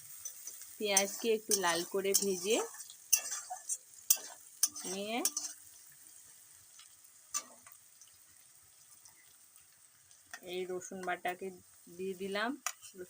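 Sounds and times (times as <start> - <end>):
onions sizzling in oil: 0.0 - 13.0
spatula scraping a pan: 0.1 - 5.7.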